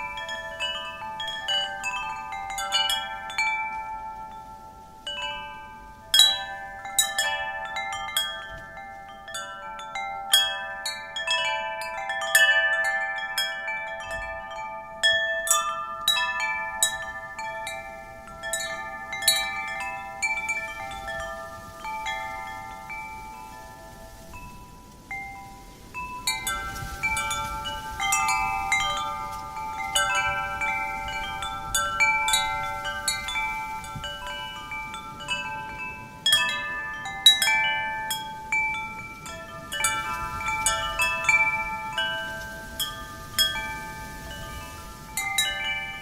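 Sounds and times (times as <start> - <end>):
faint hiss of wind: 0.0 - 46.0
wind chimes ringing: 0.0 - 46.0.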